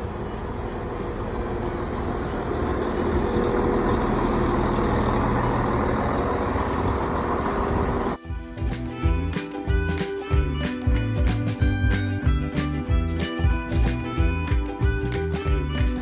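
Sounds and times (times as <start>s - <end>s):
train rumbling in motion: 0.0s - 10.0s
diesel engine humming: 0.0s - 16.0s.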